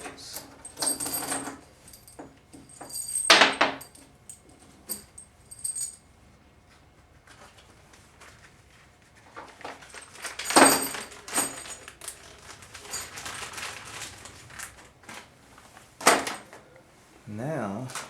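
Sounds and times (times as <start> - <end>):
metal parts clinking and knocking: 0.4 - 6.0, 10.2 - 13.2.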